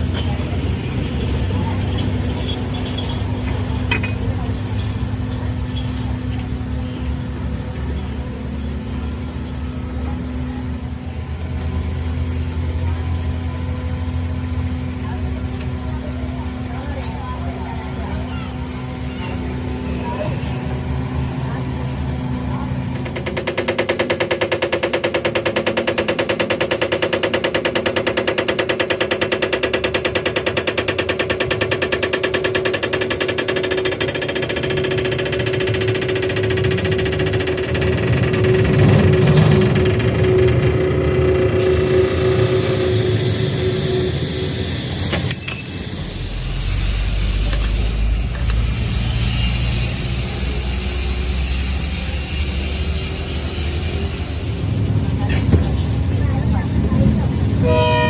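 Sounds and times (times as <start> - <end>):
boring machine pulsing hum: 31.3 - 58.0.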